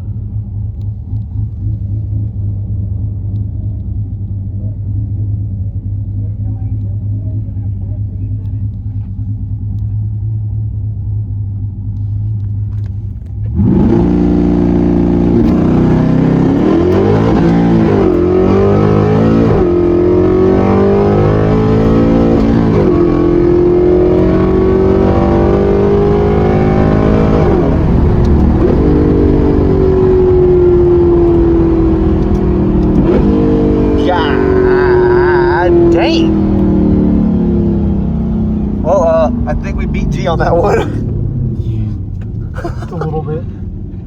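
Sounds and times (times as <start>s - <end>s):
car engine revving through gears: 13.2s - 44.0s.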